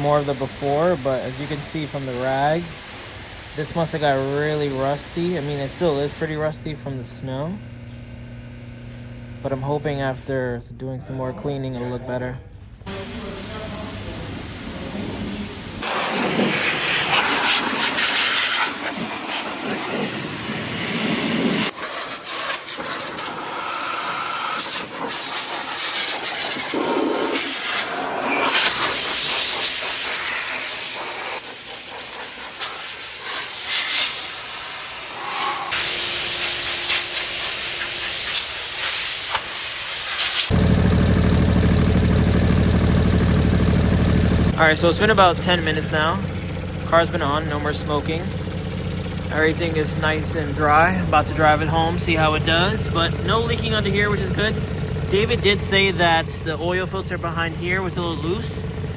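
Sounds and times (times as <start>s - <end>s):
water spray hissing: 0.0s - 6.4s, 12.9s - 19.6s, 20.6s - 58.9s
car engine idling: 40.5s - 58.9s.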